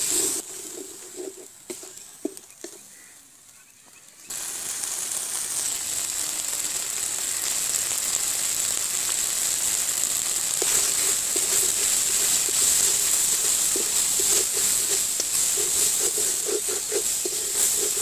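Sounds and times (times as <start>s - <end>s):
wooden spatula scraping a pan: 0.0s - 2.8s, 10.6s - 18.0s
paste sizzling in hot oil: 0.0s - 3.4s, 4.2s - 18.0s.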